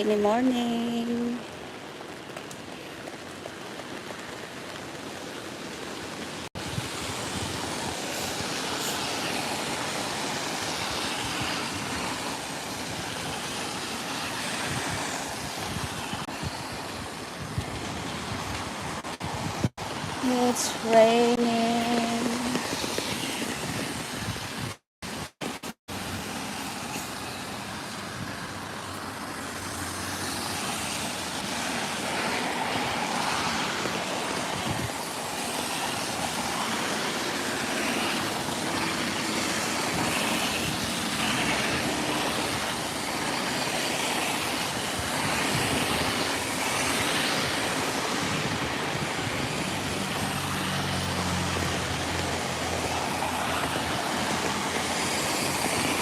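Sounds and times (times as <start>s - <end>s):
tyres hissing on wet street: 0.0s - 56.0s
passing car engines: 26.3s - 56.0s.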